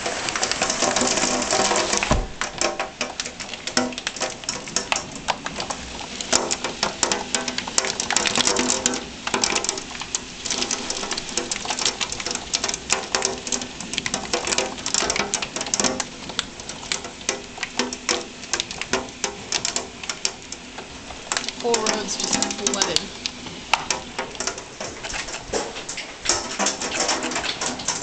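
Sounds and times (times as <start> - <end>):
hail rattling: 0.0 - 28.0
heavy rain hissing: 0.0 - 28.0.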